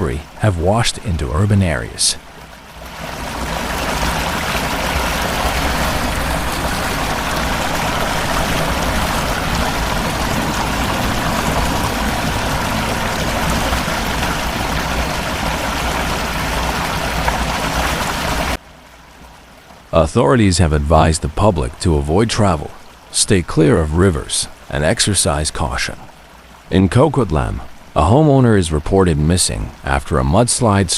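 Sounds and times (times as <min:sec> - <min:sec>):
floodwater rushing: 0:00.0 - 0:30.9.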